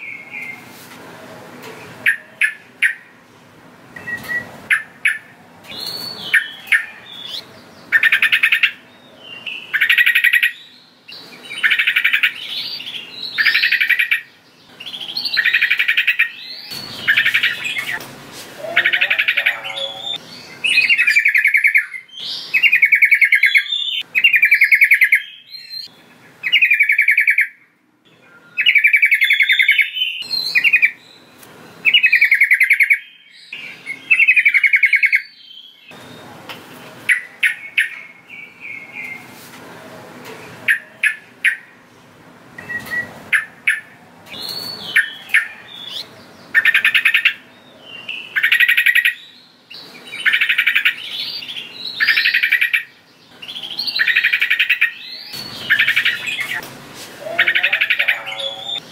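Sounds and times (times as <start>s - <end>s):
bulbul singing trilled phrases: 18.6s - 27.5s, 57.2s - 58.9s.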